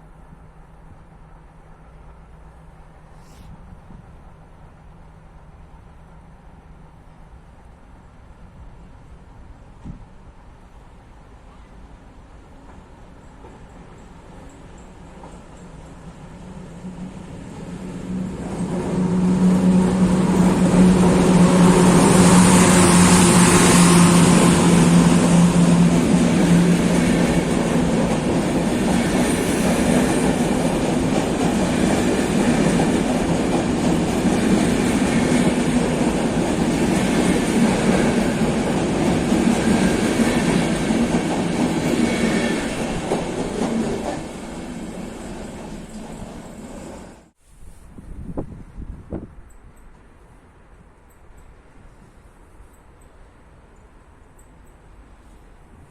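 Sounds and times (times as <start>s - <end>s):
electric locomotive humming: 3.9s - 47.4s
train wheels on rails: 9.6s - 47.4s.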